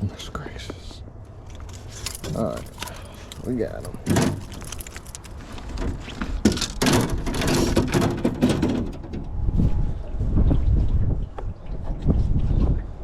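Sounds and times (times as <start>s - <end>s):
fish thrashing in a boat: 1.3s - 9.0s.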